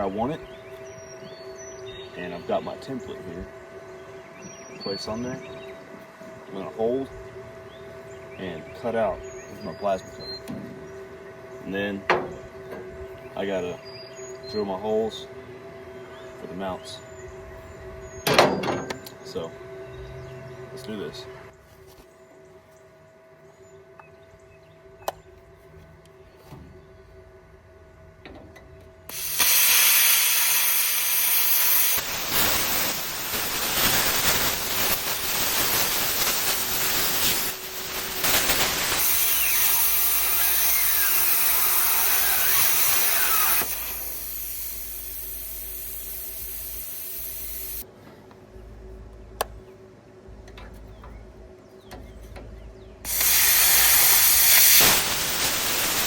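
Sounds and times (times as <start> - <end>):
plasma cutter hissing: 29.1 - 47.8, 53.1 - 56.0.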